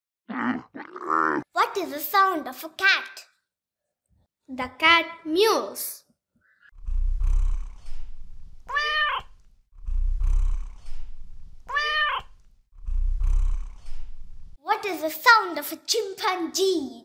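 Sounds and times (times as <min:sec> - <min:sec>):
cat purring: 0:06.8 - 0:14.6
cat meowing: 0:08.7 - 0:09.4, 0:11.7 - 0:12.4.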